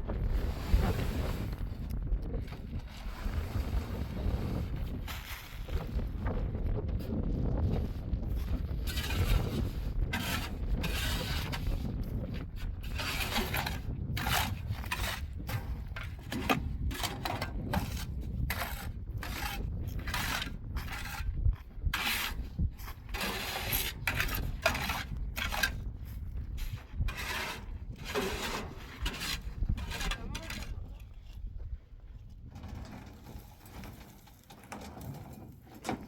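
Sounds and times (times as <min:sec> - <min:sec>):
scraping and rubbing noises: 0:00.1 - 0:06.4, 0:07.0 - 0:31.5, 0:32.2 - 0:36.0.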